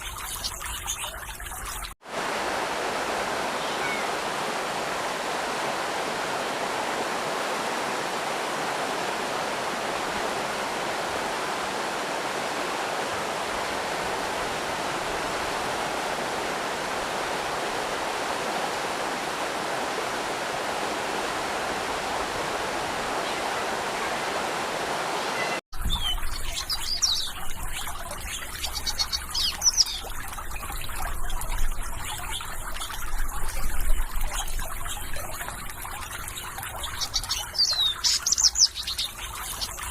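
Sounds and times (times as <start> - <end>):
birds chirping: 0.0 - 1.9, 3.4 - 4.2, 25.2 - 33.0, 36.2 - 39.9
stream water flowing: 0.0 - 39.9.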